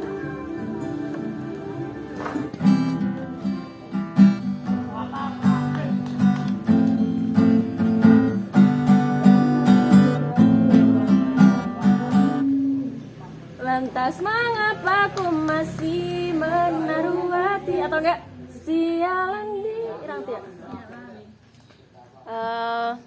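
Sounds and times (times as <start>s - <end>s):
acoustic guitar strumming chords: 0.0s - 13.1s.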